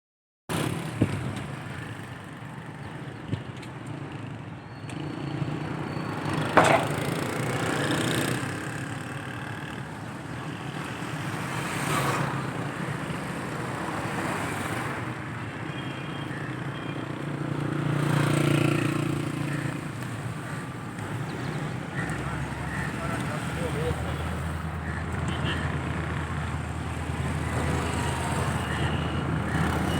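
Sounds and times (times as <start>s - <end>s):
sharp knocks: 6.6s - 7.1s.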